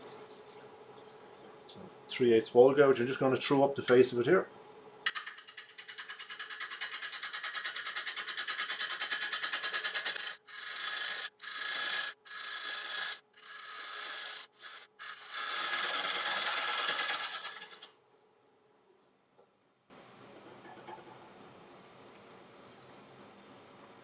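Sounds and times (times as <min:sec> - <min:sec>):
gouge cutting spinning wood: 0:05.1 - 0:17.9.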